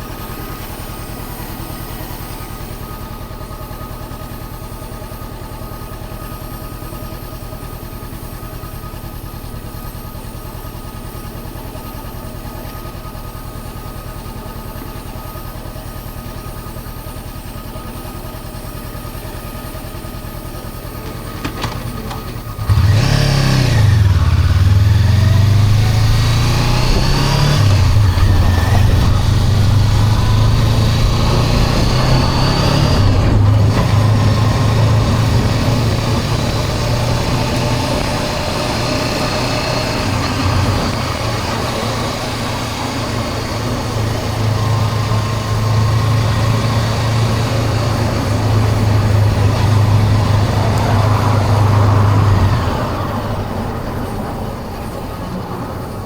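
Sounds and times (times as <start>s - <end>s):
motorcycle engine running: 0.0s - 56.0s
rushing wind noise: 22.7s - 42.7s.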